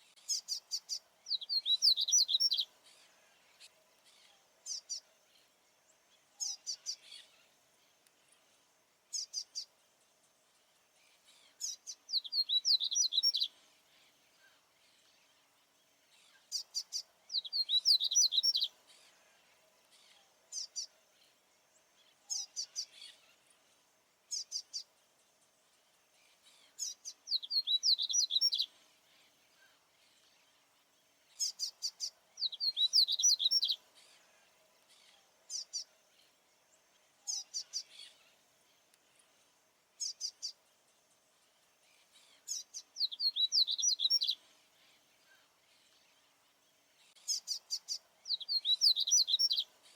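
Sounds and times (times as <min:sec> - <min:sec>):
faint steady hum: 0:00.0 - 0:49.9
seedeater bird singing: 0:00.2 - 0:02.7, 0:11.2 - 0:13.6, 0:16.3 - 0:18.8, 0:26.5 - 0:28.7, 0:31.3 - 0:34.2, 0:42.1 - 0:45.9, 0:47.1 - 0:49.9.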